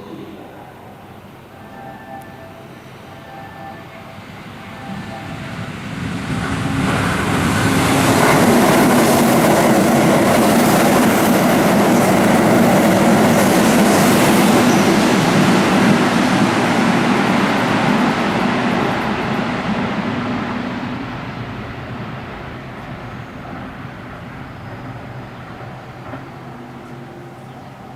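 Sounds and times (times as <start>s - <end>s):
electric train running: 0.0s - 27.9s.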